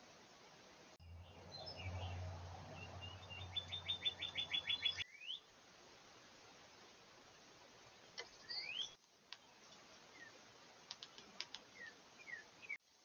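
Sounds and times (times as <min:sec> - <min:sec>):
songbird high chirps: 0:01.0 - 0:05.5, 0:07.9 - 0:10.4, 0:11.5 - 0:12.8.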